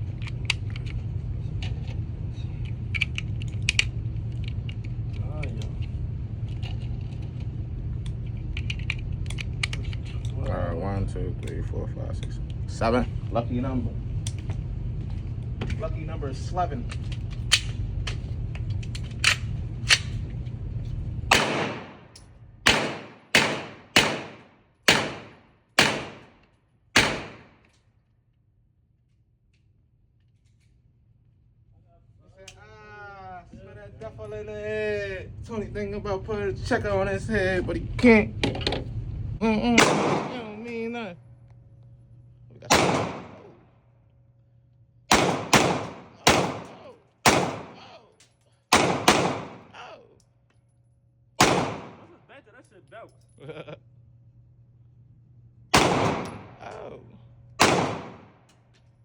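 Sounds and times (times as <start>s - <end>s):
steady low hum: 0.0s - 59.0s
pistol gunshots with echo: 21.3s - 26.3s, 27.0s - 27.6s, 39.8s - 40.6s, 42.6s - 43.6s, 45.1s - 48.0s, 48.7s - 49.8s, 51.4s - 52.2s, 55.7s - 56.6s, 57.6s - 58.4s.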